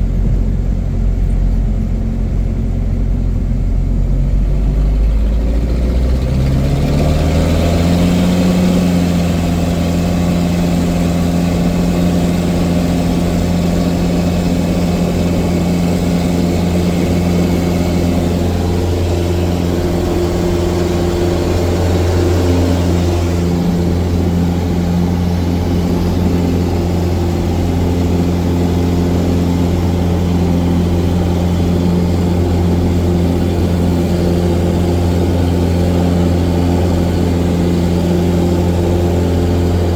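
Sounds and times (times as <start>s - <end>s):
light aircraft engine and propeller: 0.0s - 39.9s.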